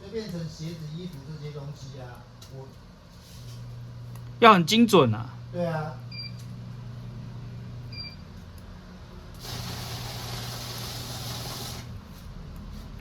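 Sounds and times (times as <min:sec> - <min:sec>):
low steady hum: 0:00.0 - 0:09.4.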